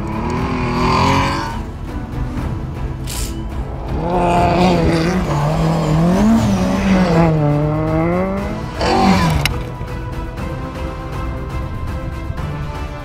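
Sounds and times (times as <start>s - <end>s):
rally car engine revving: 0.0s - 2.1s, 2.7s - 10.0s
background music: 0.0s - 13.0s.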